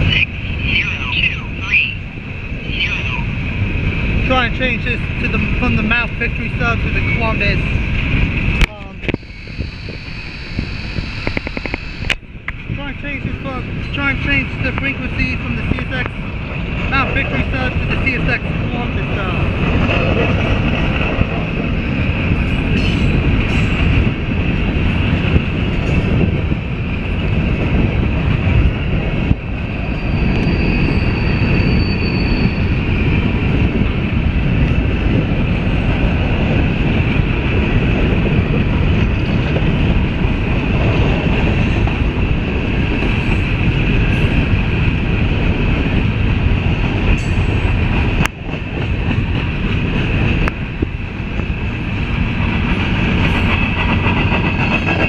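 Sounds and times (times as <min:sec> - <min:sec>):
train cars rumbling and clattering: 0:00.0 - 0:55.0
high wheel squeal: 0:09.1 - 0:12.1, 0:29.8 - 0:33.0.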